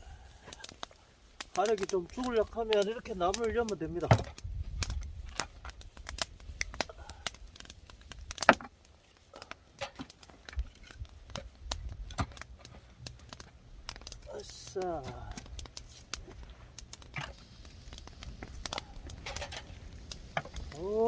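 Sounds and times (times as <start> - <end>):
sharp pops and snaps: 0.0 - 21.0
wood fire crackling: 0.0 - 21.0
wind rumble on microphone: 3.4 - 8.4, 10.5 - 12.4.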